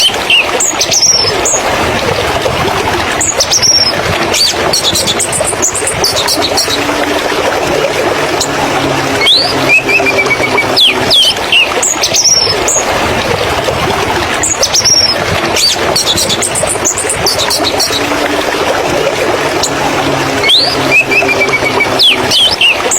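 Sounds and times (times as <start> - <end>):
steady loud background rush: 0.0 - 22.9
warbler singing high notes: 3.2 - 12.9, 14.4 - 22.9.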